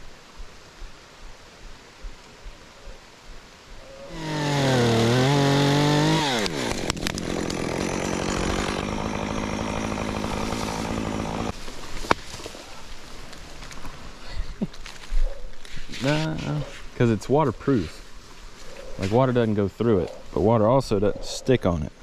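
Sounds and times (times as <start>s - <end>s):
chainsaw revving and idling: 4.1s - 11.6s.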